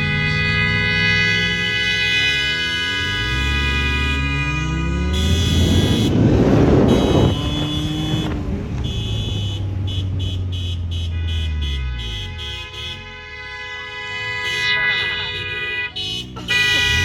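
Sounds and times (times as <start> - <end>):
car accelerating hard: 0.0 - 10.9.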